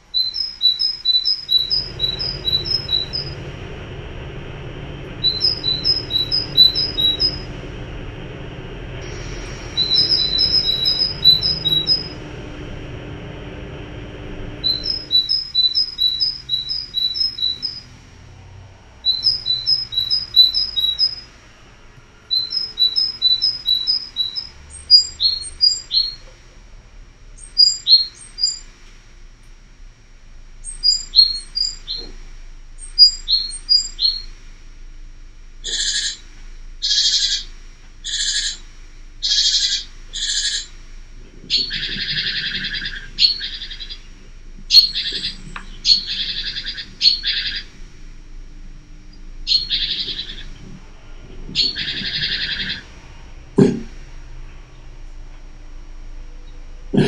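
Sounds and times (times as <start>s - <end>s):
harsh bird calls: 0.0s - 18.0s, 18.9s - 21.3s, 22.2s - 26.2s, 32.8s - 34.3s, 35.6s - 40.7s, 41.5s - 47.8s, 49.4s - 50.8s, 51.5s - 53.0s
great tit chirping: 41.6s - 44.1s, 44.7s - 47.6s.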